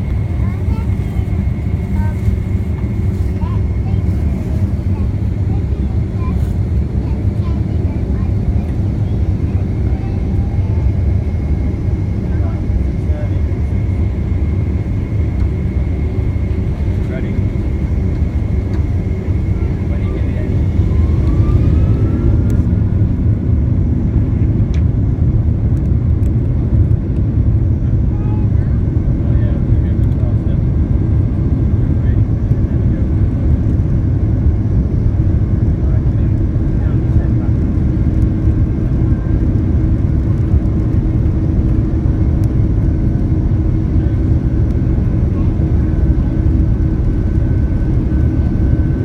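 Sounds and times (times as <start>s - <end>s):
jet engines rumbling: 0.0s - 49.0s.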